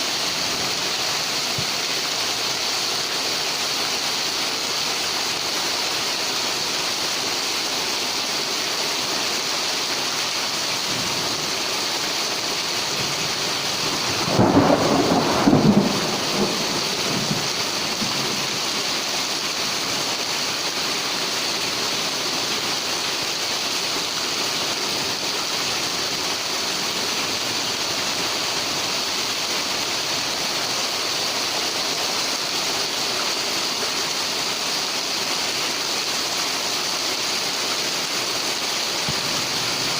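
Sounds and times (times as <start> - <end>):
heavy rain pouring: 0.0 - 39.9
thunder cracking and rumbling: 13.8 - 18.5.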